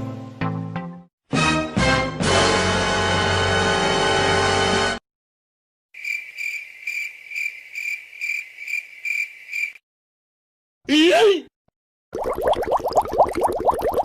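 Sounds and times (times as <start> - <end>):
crickets chirping: 6.0 - 9.8.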